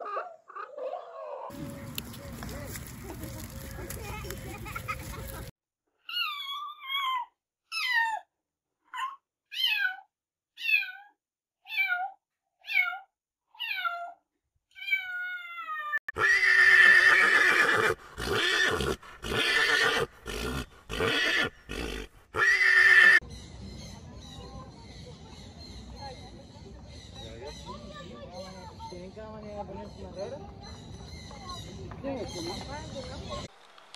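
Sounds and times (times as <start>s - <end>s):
harsh animal calls: 16.1s - 23.2s.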